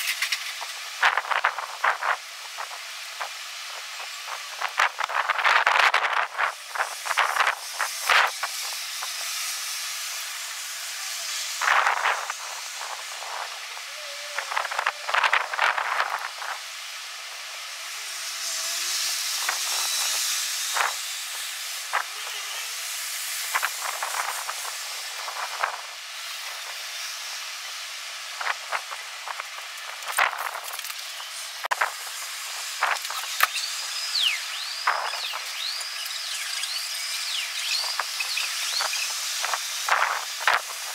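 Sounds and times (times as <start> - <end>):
strong gusty wind: 0.7 - 17.7, 18.5 - 30.8.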